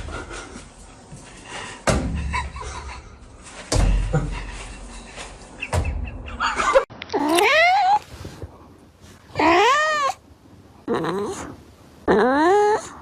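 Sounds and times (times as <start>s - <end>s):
cat meowing: 9.3s - 10.2s.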